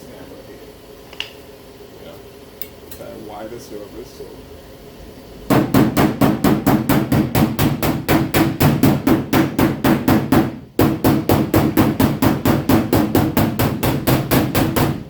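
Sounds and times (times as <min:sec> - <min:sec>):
hammer tapping sheet metal: 0:05.5 - 0:15.0.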